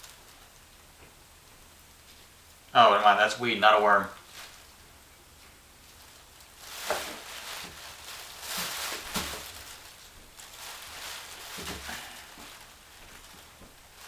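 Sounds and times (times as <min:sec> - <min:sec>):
gloved hands rustling: 0:03.9 - 0:14.0.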